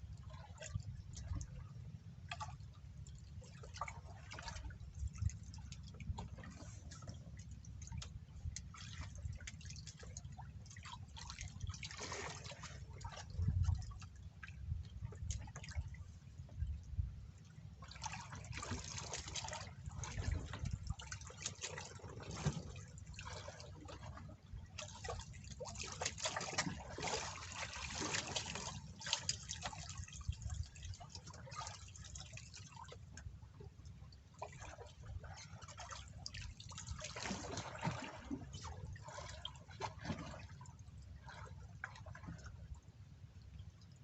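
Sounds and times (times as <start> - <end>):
water splashing and dripping: 17.9 - 33.3, 34.4 - 40.6.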